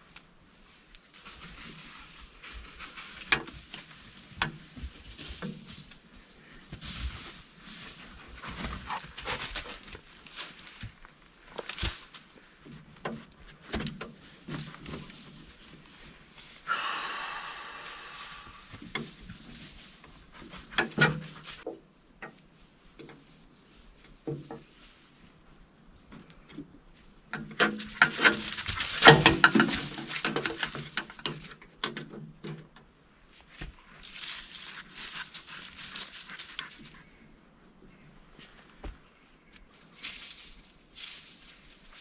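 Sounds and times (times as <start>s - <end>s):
metal jangling and clinking: 0.0s - 16.6s, 18.6s - 32.5s, 34.0s - 37.2s, 39.8s - 42.0s.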